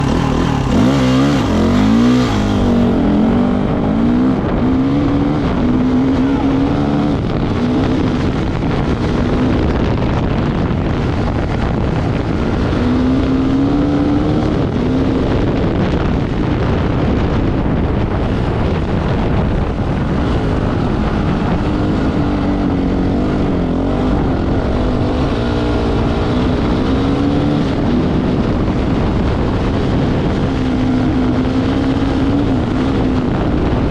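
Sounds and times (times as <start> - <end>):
off-road motorcycle engine revving: 0.0 - 33.9.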